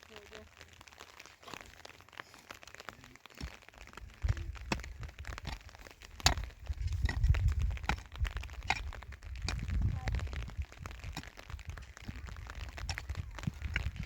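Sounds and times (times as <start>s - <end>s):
low rumbles: 3.4s - 14.0s.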